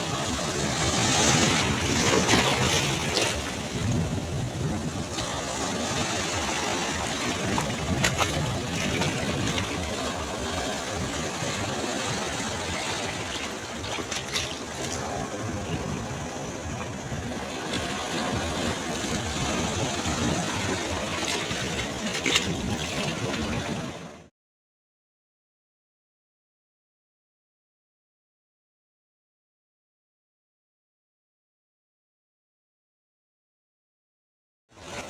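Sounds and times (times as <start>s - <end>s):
waves breaking on shore: 0.0s - 24.3s, 34.8s - 35.0s.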